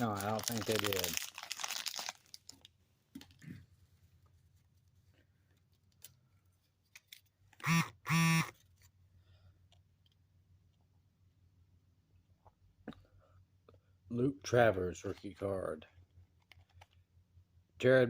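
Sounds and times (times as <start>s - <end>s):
foil wrapper crinkling: 0.0s - 3.4s
short buzzy tones: 7.6s - 8.5s.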